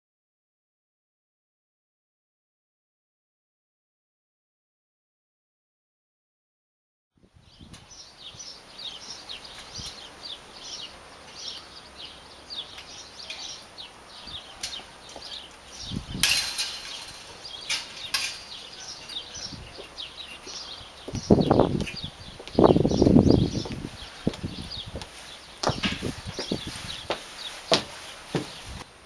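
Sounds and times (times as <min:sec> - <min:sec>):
birds chirping: 0:07.3 - 0:29.0.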